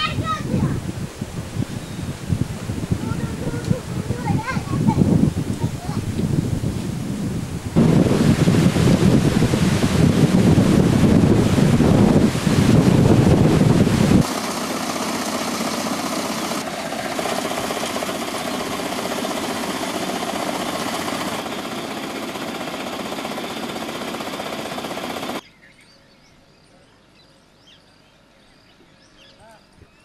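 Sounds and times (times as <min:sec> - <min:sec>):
wind buffeting microphone: 0:00.0 - 0:14.3
faint high bird chirps: 0:25.4 - 0:30.0.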